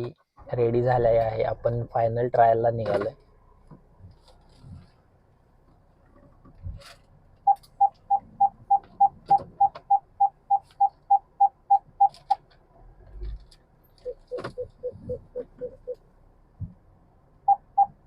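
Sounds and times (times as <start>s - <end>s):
short electronic beeps: 7.5s - 12.4s, 14.0s - 16.0s, 17.5s - 18.0s.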